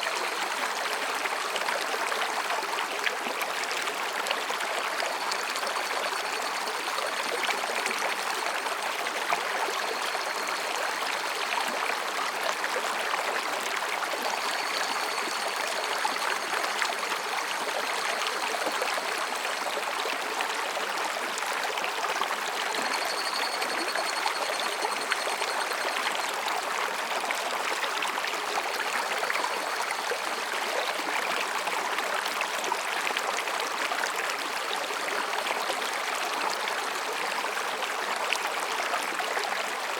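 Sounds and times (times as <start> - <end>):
stream babbling over rocks: 0.0 - 39.9
faint high cicada calls: 4.8 - 11.8, 14.0 - 19.7, 22.6 - 27.0, 28.5 - 30.9.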